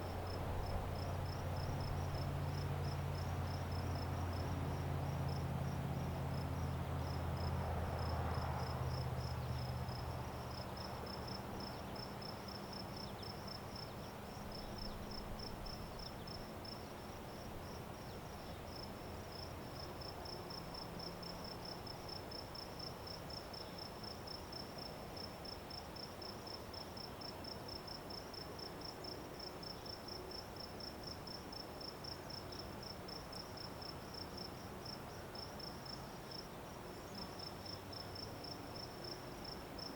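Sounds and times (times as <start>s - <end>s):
low engine hum: 0.0s - 12.0s
crickets chirping: 0.0s - 39.9s.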